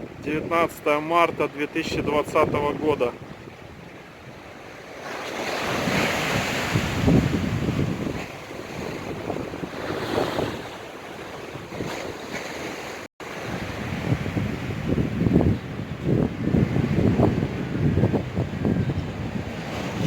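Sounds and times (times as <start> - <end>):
surf breaking on shore: 4.4 - 20.0
wind buffeting microphone: 5.6 - 12.6, 13.2 - 20.0.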